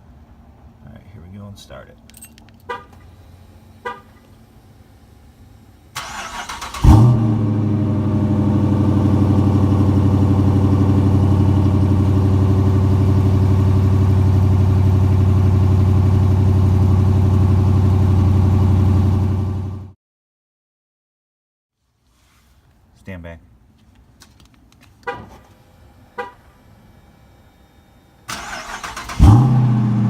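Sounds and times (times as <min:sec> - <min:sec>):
car engine idling: 0:02.7 - 0:19.9, 0:28.3 - 0:30.0.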